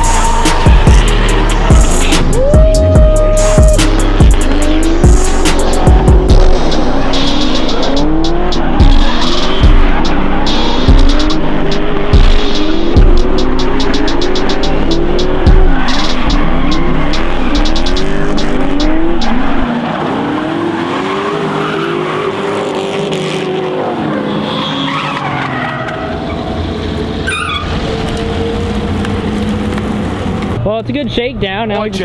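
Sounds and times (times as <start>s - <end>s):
music with a beat: 0.0s - 19.7s
car engine revving: 0.0s - 30.7s
tyres squealing: 24.0s - 30.6s.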